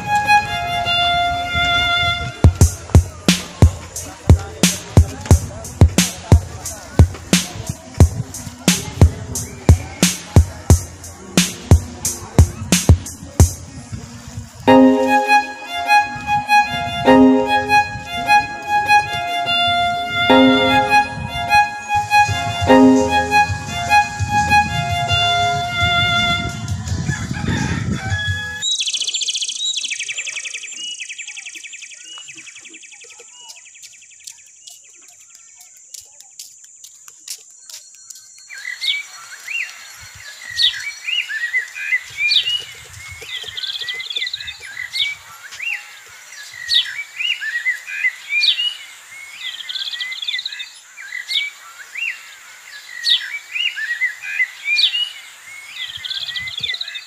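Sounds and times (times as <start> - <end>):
thin high tone: 14.7 - 26.2.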